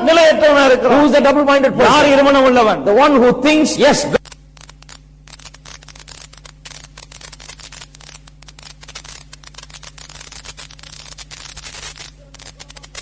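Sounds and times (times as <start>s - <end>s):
steady low hum: 0.0s - 13.0s
electrical crackling clicks: 4.2s - 13.0s.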